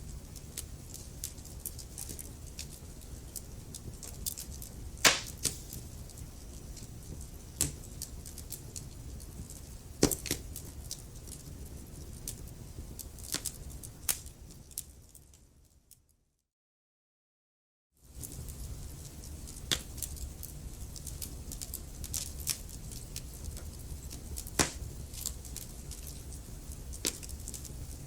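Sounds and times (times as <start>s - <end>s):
wood fire crackling: 0.0s - 15.7s, 18.0s - 28.0s
sharp pops of fire: 4.0s - 8.6s, 10.0s - 10.6s, 19.5s - 20.2s, 21.0s - 27.7s.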